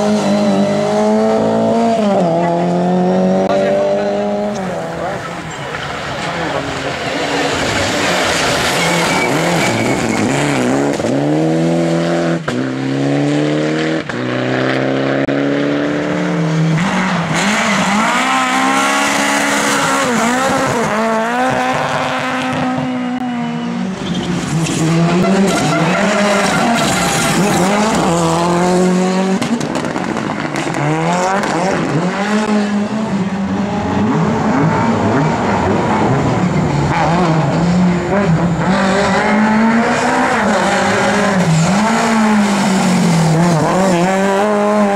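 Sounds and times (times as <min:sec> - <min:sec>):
car engines revving: 0:00.0 - 0:44.9
tyres squealing: 0:05.1 - 0:10.8, 0:24.0 - 0:28.1.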